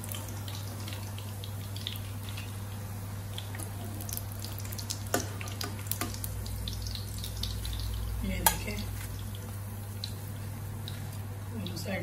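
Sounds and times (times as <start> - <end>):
food sizzling in oil: 0.0 - 12.0
metal tongs clicking on pan: 8.4 - 8.7.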